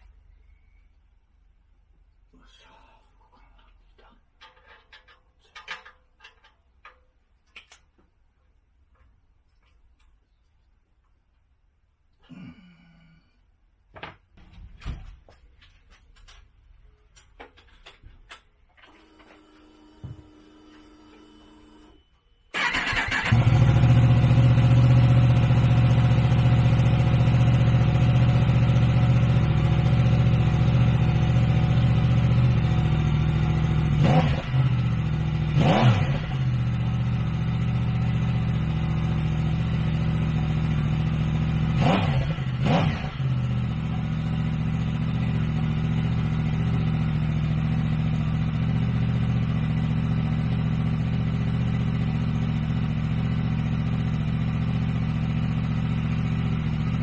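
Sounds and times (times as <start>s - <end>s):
motorcycle engine idling and revving: 22.6s - 57.0s.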